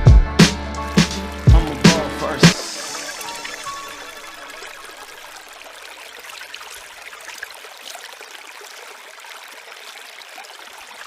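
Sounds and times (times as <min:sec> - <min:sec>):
stream water running: 0:00.6 - 0:11.0.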